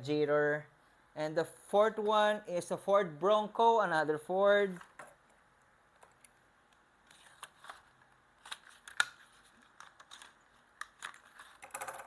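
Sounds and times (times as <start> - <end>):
plastic packaging clicks and crackles: 7.1 - 12.0.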